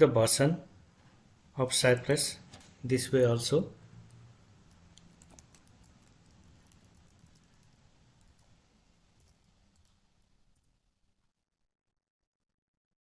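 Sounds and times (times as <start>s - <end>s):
keyboard typing clicks: 4.1s - 8.6s.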